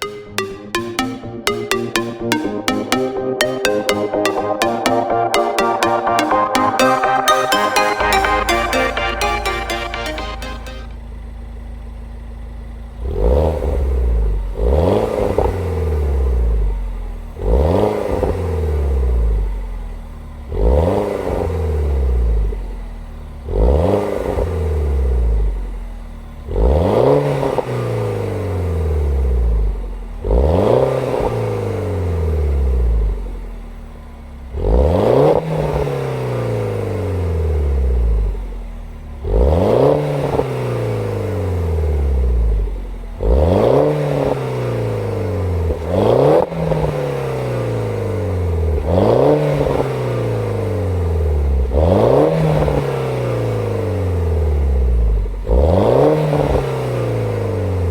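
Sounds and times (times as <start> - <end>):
car engine revving: 13.0 - 16.5, 34.5 - 57.9.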